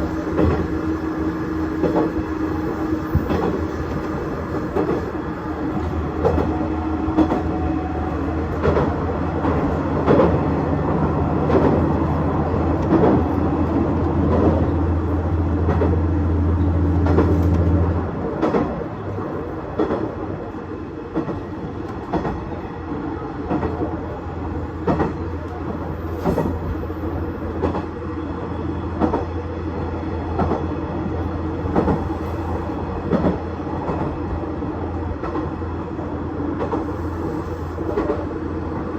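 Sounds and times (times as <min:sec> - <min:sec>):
diesel railcar engine drone: 0:00.0 - 0:38.9
wheels clicking over rail joints: 0:01.8 - 0:05.2, 0:08.5 - 0:10.4.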